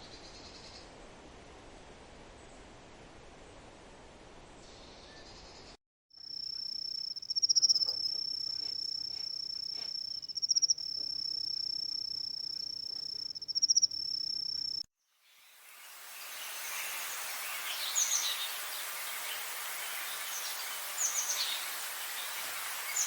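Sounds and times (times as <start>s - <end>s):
insect trilling: 6.2s - 14.8s.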